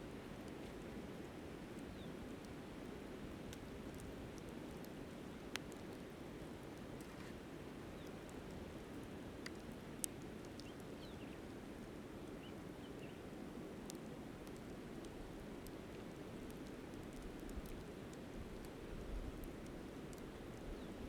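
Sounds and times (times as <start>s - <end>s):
campfire crackling and popping: 0.1s - 21.0s.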